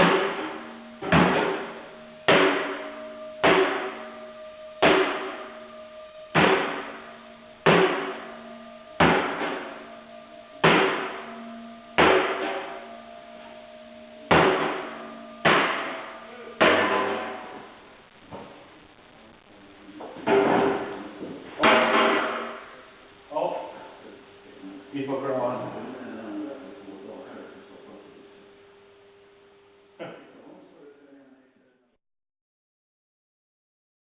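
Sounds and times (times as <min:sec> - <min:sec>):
hammer striking metal stove: 0:00.0 - 0:01.7, 0:02.3 - 0:02.8, 0:03.4 - 0:04.0, 0:04.8 - 0:05.4, 0:06.3 - 0:06.9, 0:07.6 - 0:08.3, 0:09.0 - 0:09.8, 0:10.6 - 0:11.3, 0:12.0 - 0:12.7, 0:14.3 - 0:17.6, 0:21.6 - 0:22.6
metallic ring: 0:00.0 - 0:17.8.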